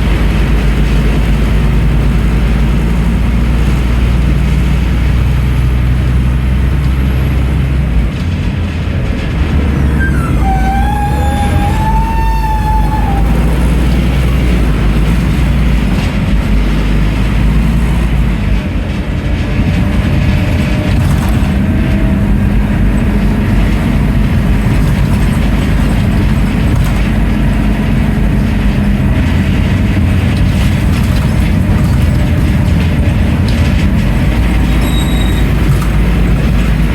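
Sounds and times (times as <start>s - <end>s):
bus diesel engine running: 0.0s - 36.9s
road noise: 0.0s - 36.9s
body rattles: 18.8s - 36.9s.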